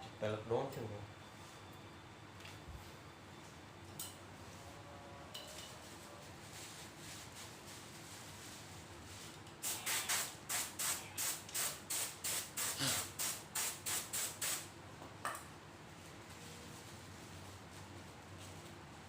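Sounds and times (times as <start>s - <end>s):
spray paint can hissing: 9.6s - 14.7s.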